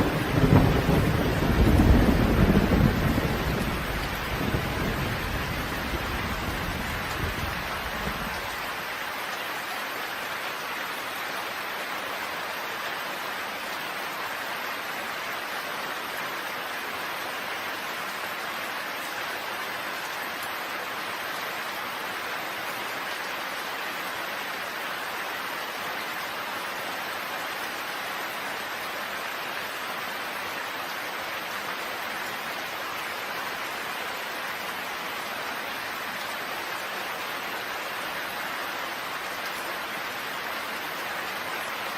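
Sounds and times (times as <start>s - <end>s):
thunder rumble: 0.0s - 8.4s
steady rain hiss: 0.0s - 41.9s.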